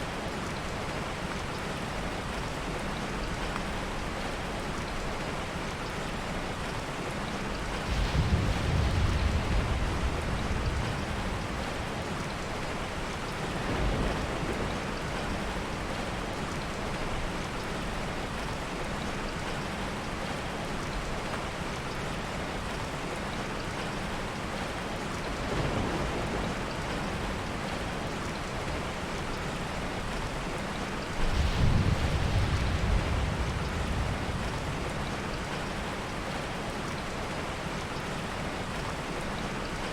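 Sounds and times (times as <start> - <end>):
heavy rain: 0.0 - 39.9
soft thunder rolling: 7.6 - 16.3, 30.9 - 36.6.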